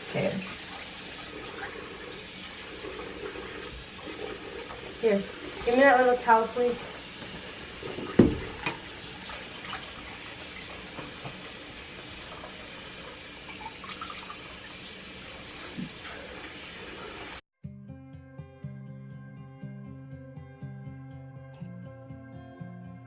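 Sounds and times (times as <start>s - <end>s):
tap water running into sink: 0.0s - 17.4s
sharp knocks: 8.0s - 8.8s.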